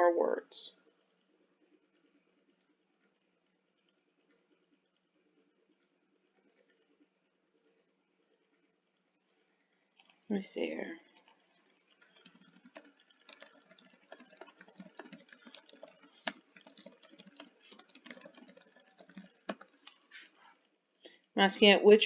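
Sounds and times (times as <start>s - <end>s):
typing on computer keyboard: 11.1s - 20.0s.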